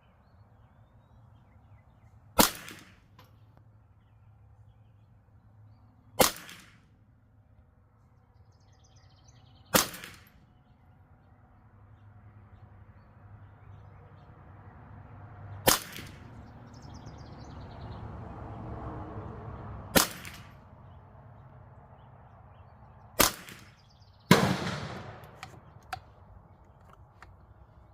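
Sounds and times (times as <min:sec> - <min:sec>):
rifle shots: 0:02.4 - 0:03.1, 0:06.2 - 0:06.8, 0:09.7 - 0:10.3, 0:15.7 - 0:16.2, 0:20.0 - 0:20.6, 0:23.2 - 0:26.2.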